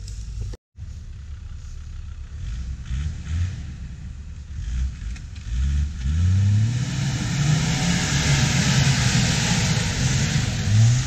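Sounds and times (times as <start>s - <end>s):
engine running at low revs: 0.0s - 11.0s.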